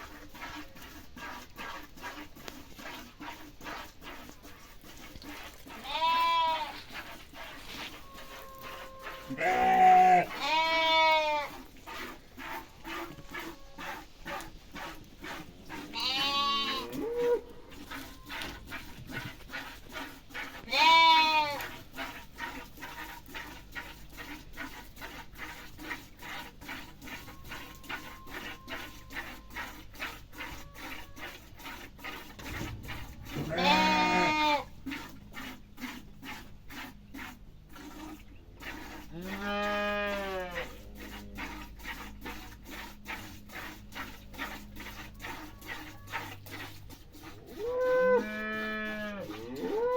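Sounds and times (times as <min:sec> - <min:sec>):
livestock calling: 0:15.2 - 0:18.5, 0:33.4 - 0:34.7.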